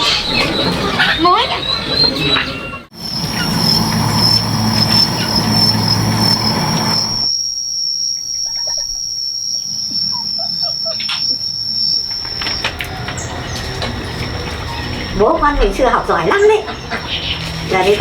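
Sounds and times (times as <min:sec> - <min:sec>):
low hum: 0:02.8 - 0:07.3
high-pitched insect trill: 0:03.0 - 0:17.8.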